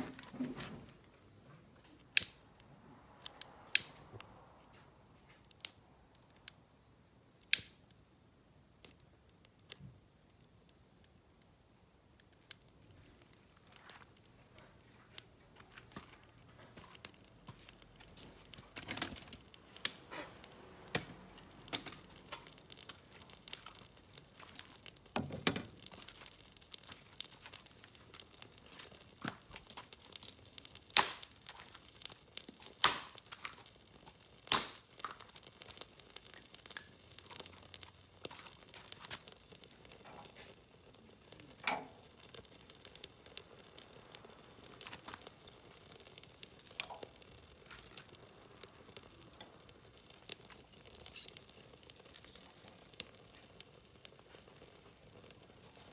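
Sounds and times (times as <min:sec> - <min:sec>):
firewood snapping and cracking: 0:02.1 - 0:02.4, 0:03.3 - 0:03.9, 0:07.3 - 0:07.9, 0:08.8 - 0:55.9
crinkling: 0:12.2 - 0:55.9.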